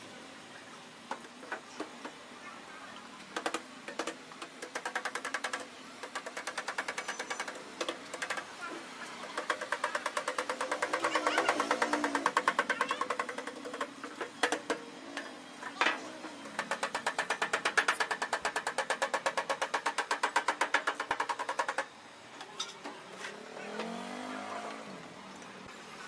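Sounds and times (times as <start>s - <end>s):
machine rapid knocking strokes: 3.4s - 8.5s, 9.2s - 14.8s, 16.4s - 21.9s.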